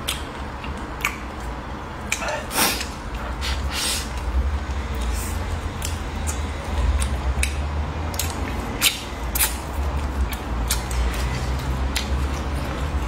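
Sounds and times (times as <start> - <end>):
steady low hum: 0.0 - 13.0
wet chewing mouth smacks: 5.8 - 12.5.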